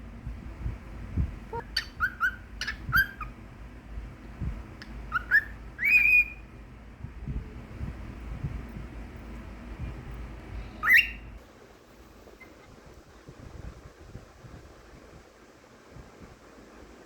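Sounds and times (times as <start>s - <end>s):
cockatiel whistling: 1.5s - 3.3s, 5.1s - 6.4s, 10.8s - 11.4s.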